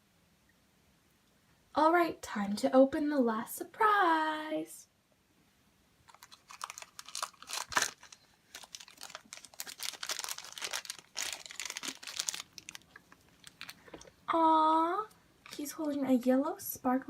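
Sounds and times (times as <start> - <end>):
wrapping crinkling and tearing: 6.0 - 14.1.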